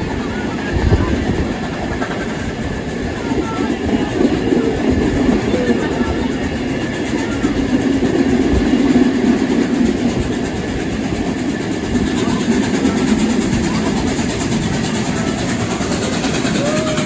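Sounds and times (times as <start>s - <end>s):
train running rumble: 0.0s - 17.0s.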